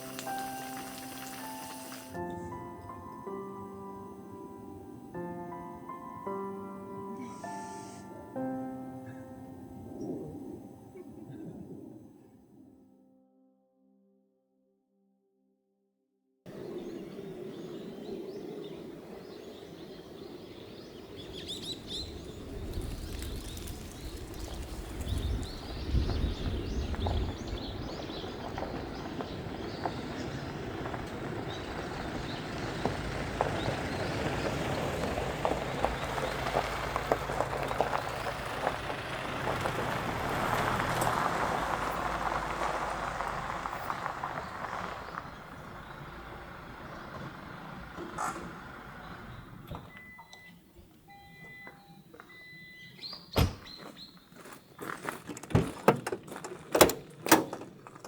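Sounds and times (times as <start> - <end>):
crackles: 0.0 - 2.5, 20.9 - 49.0
bird chirps: 16.5 - 30.6, 49.0 - 54.6
vehicle engine rumble: 16.5 - 54.2, 55.0 - 58.0.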